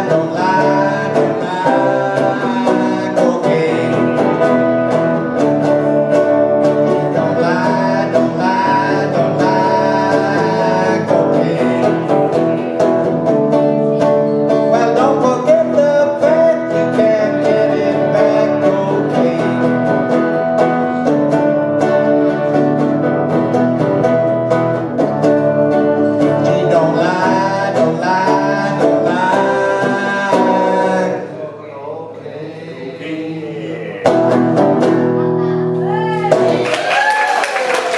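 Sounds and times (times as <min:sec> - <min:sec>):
person singing: 0:00.0 - 0:23.8, 0:25.4 - 0:37.9
plucked string instruments: 0:00.0 - 0:31.4, 0:33.8 - 0:36.6.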